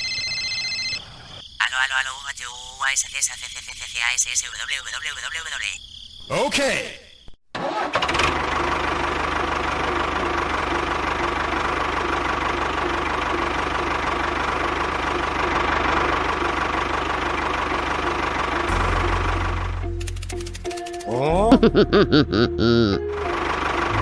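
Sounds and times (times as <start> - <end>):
engine knocking steadily: 8.5 - 21.0, 23.2 - 24.0.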